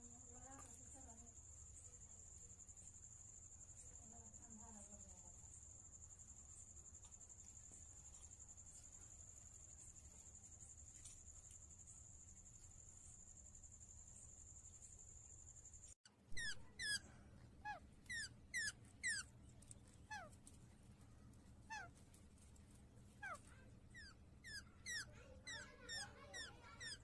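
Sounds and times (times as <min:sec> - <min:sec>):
parrot squeaky calls: 0:16.3 - 0:19.3, 0:20.1 - 0:20.3, 0:21.7 - 0:21.9, 0:23.2 - 0:23.4, 0:24.0 - 0:27.0.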